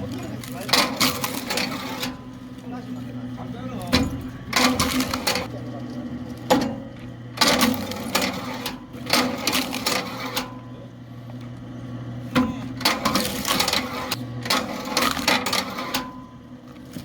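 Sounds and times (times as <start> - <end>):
log splitter motor hum: 0.0 - 17.0
wood cracking and clatter: 3.9 - 5.5.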